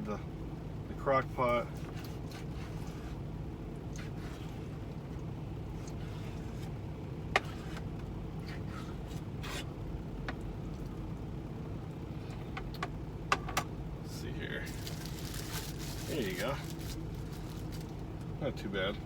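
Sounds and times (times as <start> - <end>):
diesel engine idling: 0.0 - 2.3, 3.1 - 19.0
knife scraping in plastic bag: 14.7 - 17.9.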